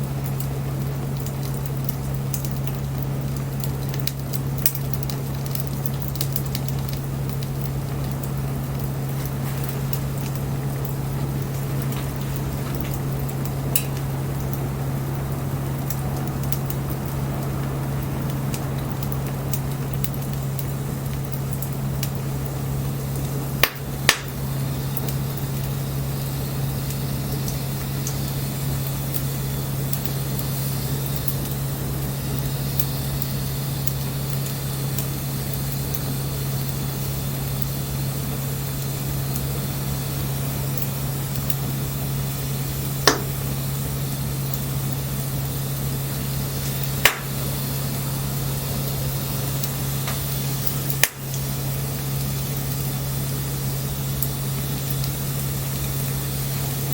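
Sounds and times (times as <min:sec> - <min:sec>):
wood crackling pops: 0:00.0 - 0:39.6, 0:40.2 - 0:56.0
bonfire hissing: 0:00.0 - 0:56.9
low hum: 0:07.4 - 0:29.8.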